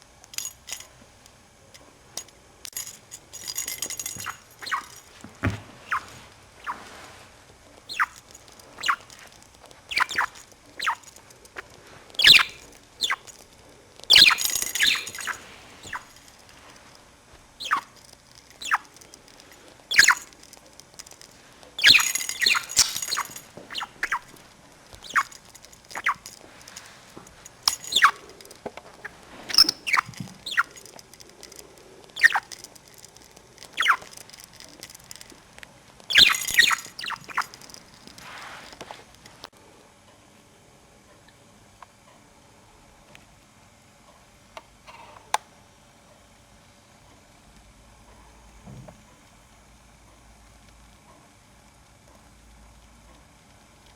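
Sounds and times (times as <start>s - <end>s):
budgerigar chirping: 4.6s - 4.9s, 7.9s - 8.2s, 8.8s - 9.1s, 9.9s - 11.0s, 12.2s - 13.3s, 14.1s - 16.1s, 17.6s - 17.9s, 18.6s - 18.9s, 19.9s - 20.2s, 21.8s - 24.3s, 25.0s - 25.4s, 27.9s - 28.2s, 29.6s - 30.7s, 32.2s - 32.4s, 33.8s - 34.0s, 36.1s - 37.4s
budgerigar chatter: 8.8s - 9.1s.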